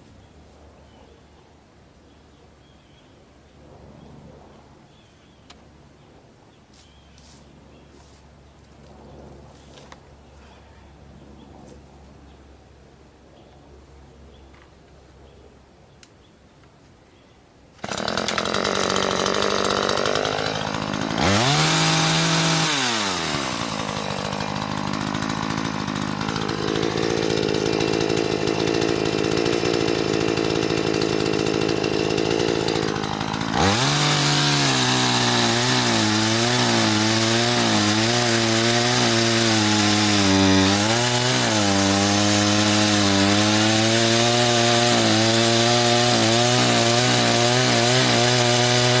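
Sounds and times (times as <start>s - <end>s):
chainsaw cutting wood: 17.8s - 49.0s.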